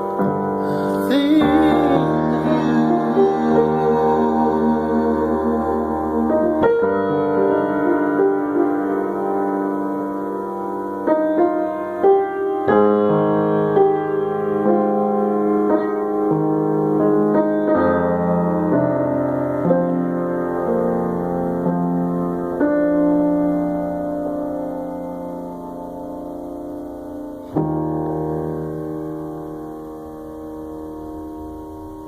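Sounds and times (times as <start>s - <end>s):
soft piano chords: 0.0s - 32.0s.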